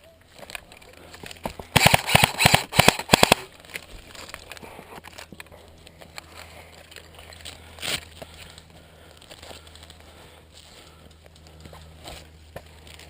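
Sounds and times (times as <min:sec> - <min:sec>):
airsoft rifle firing full auto: 0:01.7 - 0:03.5.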